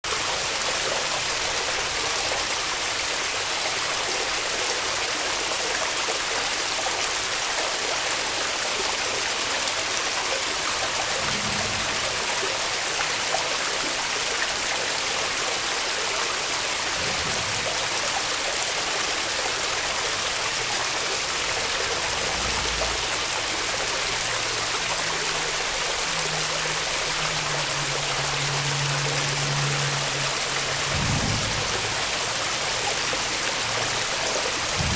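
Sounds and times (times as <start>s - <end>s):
small waterfall rushing: 0.0s - 34.9s.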